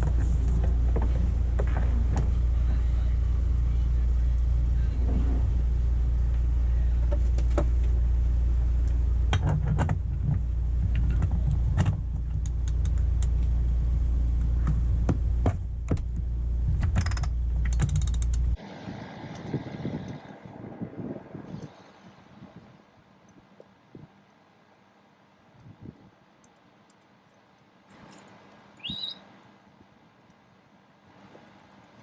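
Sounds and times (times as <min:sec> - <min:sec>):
low rumble: 0:00.0 - 0:22.8
sailboat rigging clicking and creaking: 0:14.4 - 0:18.6.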